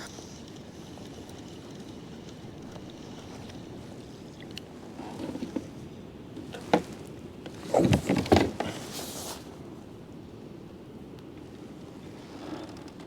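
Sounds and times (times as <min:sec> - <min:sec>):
thumps and clunks: 0:06.6 - 0:09.0.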